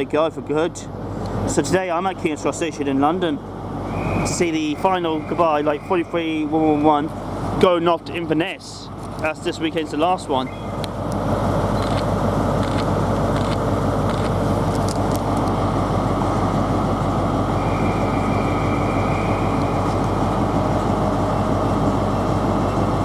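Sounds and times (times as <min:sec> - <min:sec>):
diesel engine idling: 0:00.0 - 0:23.0
faint high whine: 0:02.2 - 0:08.3, 0:15.2 - 0:23.0.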